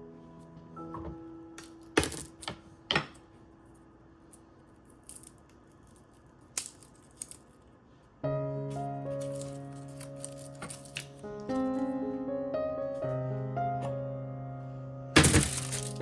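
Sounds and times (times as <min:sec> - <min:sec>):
background music: 0:08.2 - 0:16.0.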